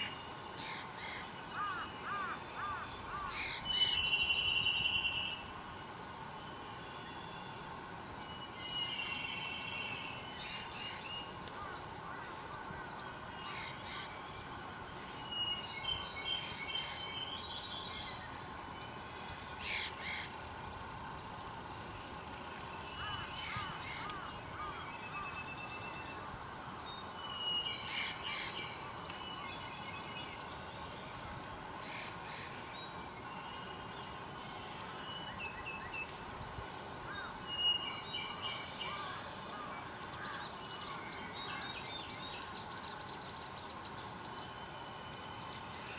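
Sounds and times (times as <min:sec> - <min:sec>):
outdoor background hiss: 0:00.0 - 0:45.9
wild birds singing: 0:22.7 - 0:45.9.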